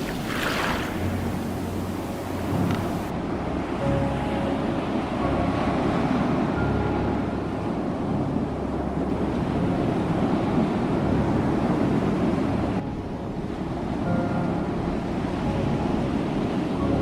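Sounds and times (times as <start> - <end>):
ocean surf washing on shore: 0.0 - 3.4.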